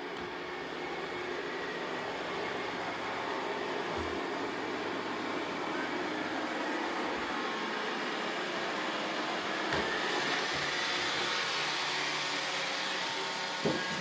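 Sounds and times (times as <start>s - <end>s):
robot vacuums whirring: 0.0s - 14.0s.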